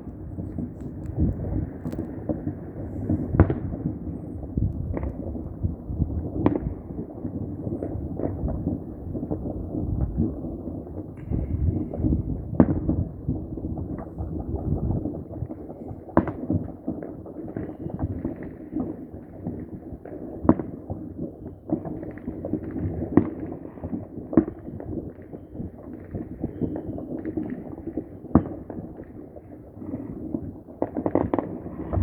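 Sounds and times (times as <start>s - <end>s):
fireworks bangs: 0.0s - 10.3s, 21.7s - 32.0s
firecrackers crackling: 0.0s - 32.0s.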